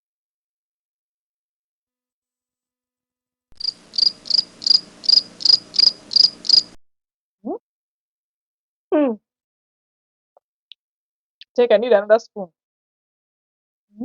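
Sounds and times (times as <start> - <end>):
cricket chirping: 3.6 - 6.8.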